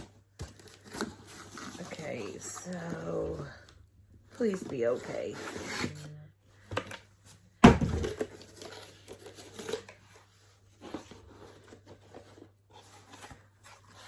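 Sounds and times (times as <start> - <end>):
cardboard and packing material tearing: 0.0 - 3.5, 7.8 - 14.0.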